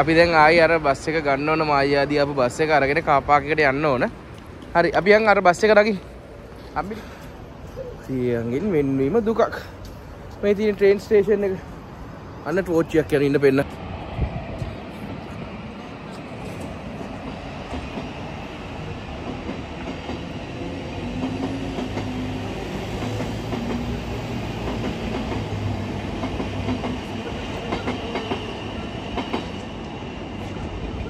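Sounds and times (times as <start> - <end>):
train rumble: 0.0 - 31.0.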